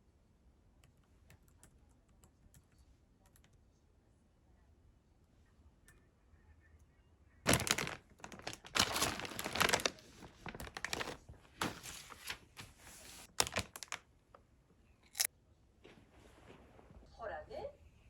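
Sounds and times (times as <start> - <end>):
rustling and crinkling: 7.5 - 14.4.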